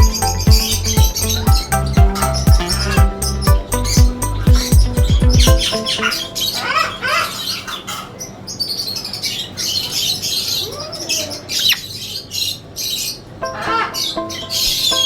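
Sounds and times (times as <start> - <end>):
background music with sliding bass: 0.0 - 6.0
caged birds chirping: 0.0 - 15.0.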